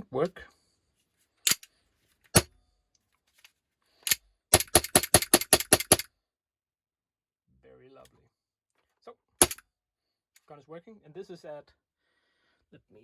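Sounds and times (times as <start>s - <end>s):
airsoft pistol firing: 4.5s - 6.1s, 9.4s - 9.6s.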